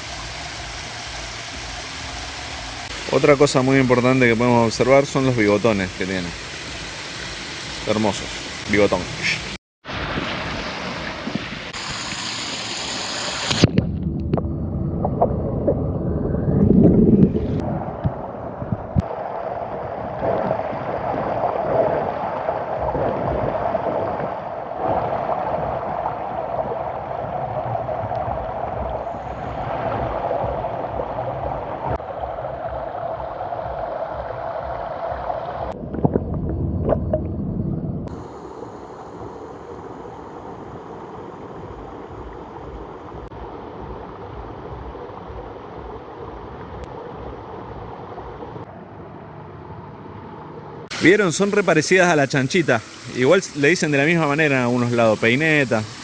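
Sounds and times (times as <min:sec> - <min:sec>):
low rumble: 0:13.6 - 0:40.9
creek water running over stones: 0:50.9 - 0:56.0.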